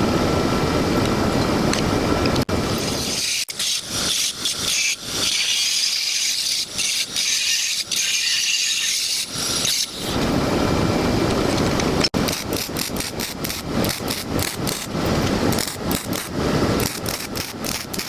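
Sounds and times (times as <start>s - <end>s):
angle grinder grinding steel: 2.7s - 10.2s.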